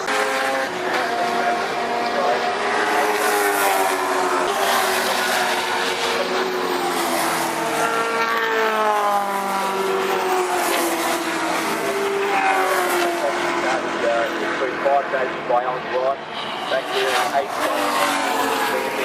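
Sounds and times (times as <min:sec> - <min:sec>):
racing car engines passing: 0:00.0 - 0:19.0.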